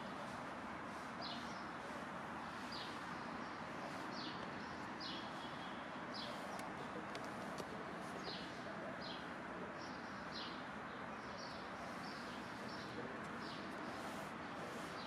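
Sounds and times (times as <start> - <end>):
street noise hum: 0.0 - 15.0.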